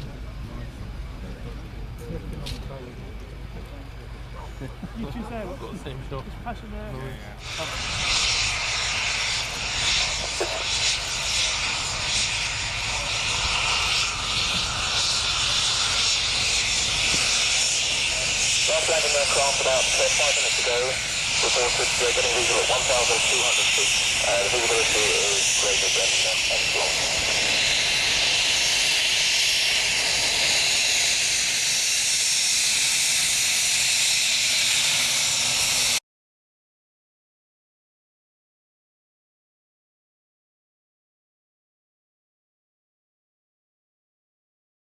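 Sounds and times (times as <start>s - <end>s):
jet passing close by: 7.4s - 36.0s.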